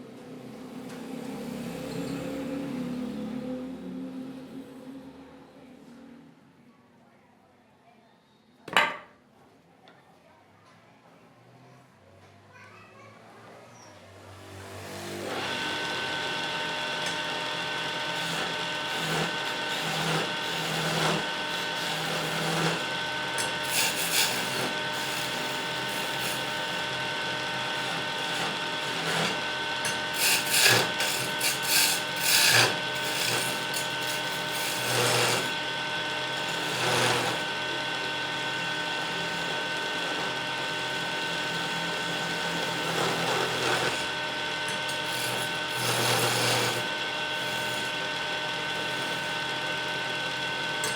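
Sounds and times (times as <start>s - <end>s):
lathe motor hum: 14.8s - 50.9s
tool scraping spinning wood: 14.9s - 50.9s.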